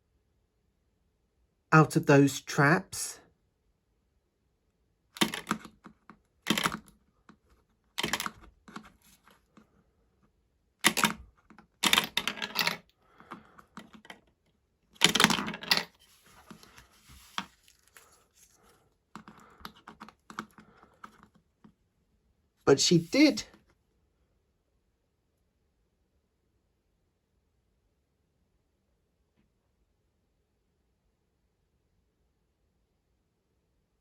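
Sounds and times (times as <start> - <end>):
marbles clattering on plastic: 11.8 - 14.2, 15.0 - 16.6.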